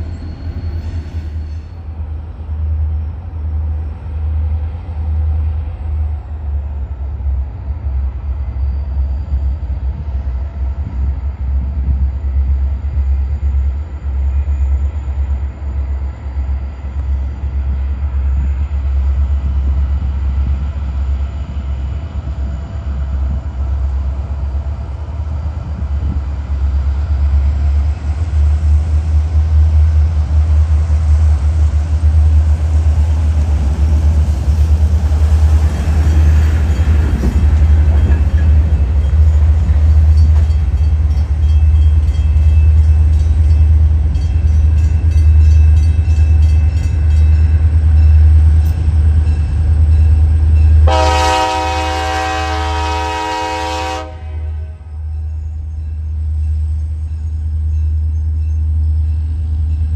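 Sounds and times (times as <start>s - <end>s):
diesel train rumble: 0.0s - 59.9s
locomotive horn: 50.8s - 55.1s.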